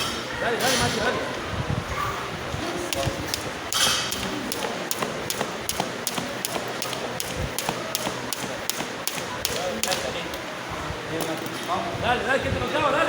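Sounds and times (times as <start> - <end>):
jump rope ticking on floor: 4.1 - 10.0.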